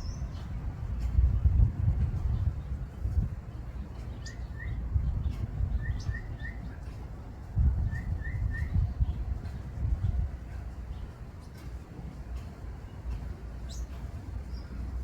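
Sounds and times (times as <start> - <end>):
small bird chirping: 3.9 - 6.8.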